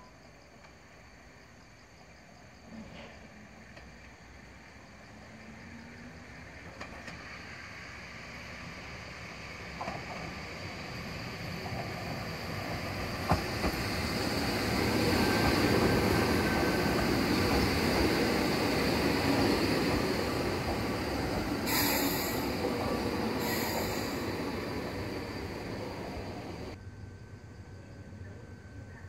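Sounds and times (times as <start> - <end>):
electric train running past: 0.0 - 29.0.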